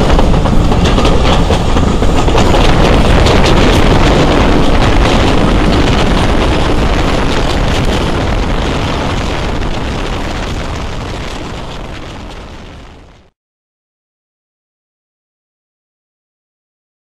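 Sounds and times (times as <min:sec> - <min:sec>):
train rumbling at speed: 0:00.0 - 0:13.3
wind buffeting microphone: 0:00.0 - 0:13.3.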